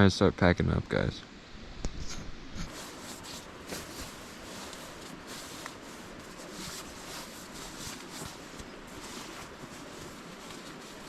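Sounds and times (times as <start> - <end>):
steady hiss: 0.0 - 11.0
camping gear rustling: 1.9 - 11.0.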